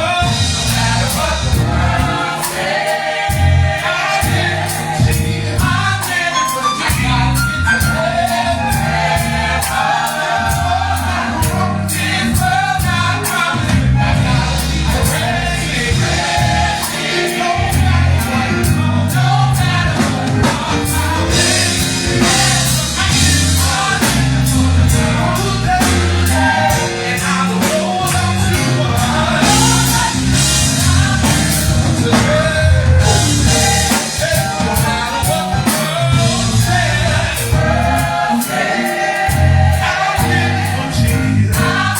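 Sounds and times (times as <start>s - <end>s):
bass: 0.0s - 41.9s
drum kit: 0.0s - 41.9s
gospel choir singing: 0.0s - 41.9s
keyboard playing: 0.0s - 41.9s.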